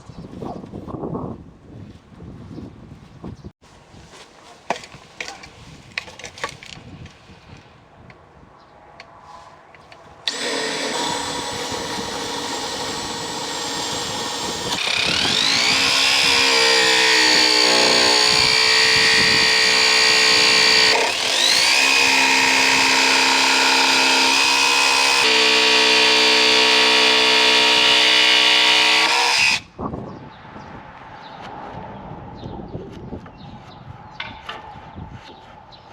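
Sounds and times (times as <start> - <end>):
power tool motor running: 10.3 - 29.6.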